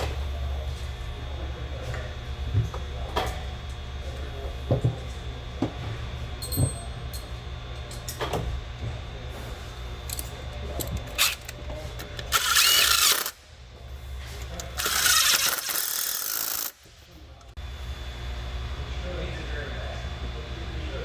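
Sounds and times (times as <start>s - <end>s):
tool handling clicks: 10.1s - 13.4s, 14.4s - 16.8s
power ratchet zipping: 10.8s - 13.4s, 14.4s - 16.9s.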